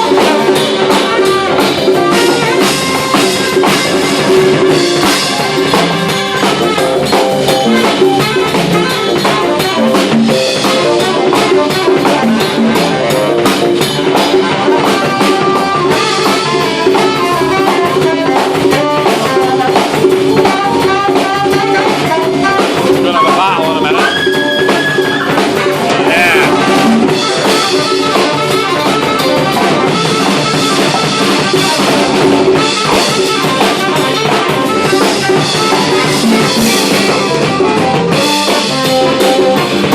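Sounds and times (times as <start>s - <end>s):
big band jazz: 0.0s - 39.9s
instrument holding high note: 22.5s - 27.8s.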